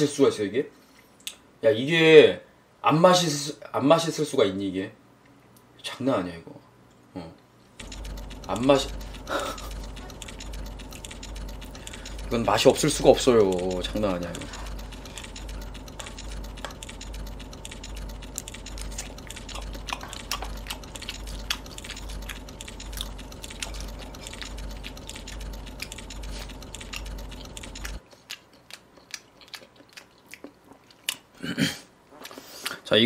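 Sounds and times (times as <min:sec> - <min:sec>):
low hum: 0:07.8 - 0:28.0
chewing raw meat: 0:07.8 - 0:31.4.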